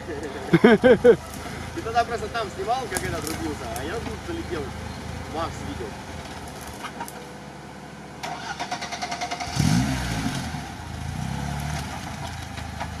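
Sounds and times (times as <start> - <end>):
car engine revving and idling: 0.0 - 13.0
starter motor cranking: 8.2 - 9.7.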